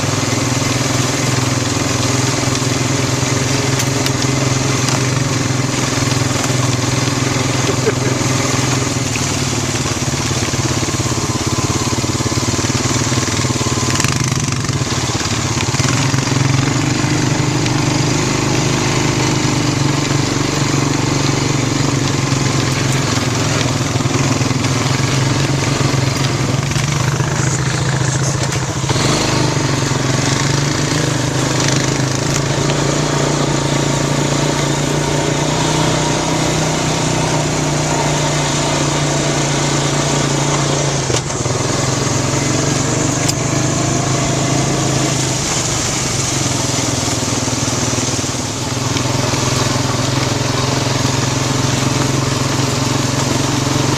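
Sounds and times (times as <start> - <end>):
quad bike engine running: 0.0 - 53.9.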